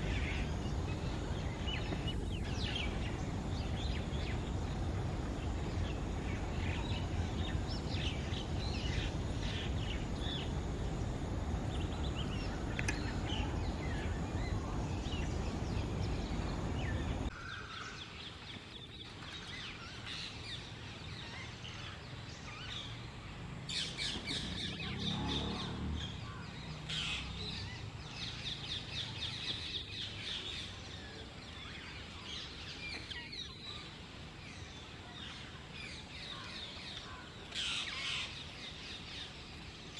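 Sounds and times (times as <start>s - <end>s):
low background rumble: 0.0s - 17.4s
birds chirping: 0.0s - 22.8s.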